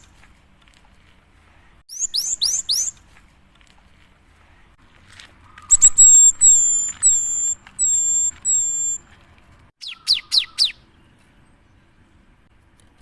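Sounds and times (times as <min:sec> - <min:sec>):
bird whistling: 0:01.9 - 0:02.9, 0:05.6 - 0:09.0, 0:09.8 - 0:10.8.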